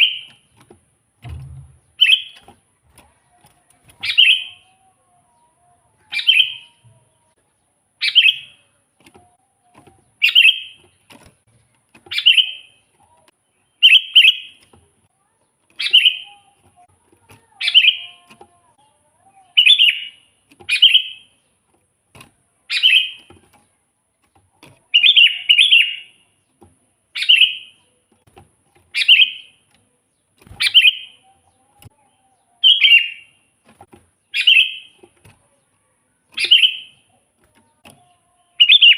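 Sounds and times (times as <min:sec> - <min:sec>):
bulbul chirpy calls: 0:10.1 - 0:10.9, 0:15.8 - 0:18.3, 0:28.9 - 0:29.6, 0:30.4 - 0:31.8, 0:34.3 - 0:35.0, 0:36.3 - 0:38.9.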